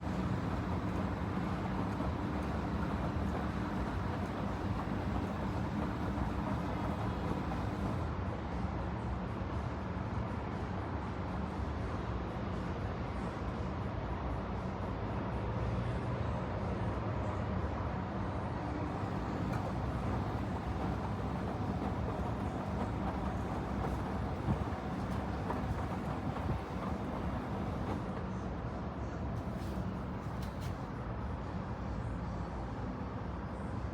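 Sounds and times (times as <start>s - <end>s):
washing machine humming: 0.0s - 8.0s, 18.9s - 28.2s, 29.3s - 30.9s.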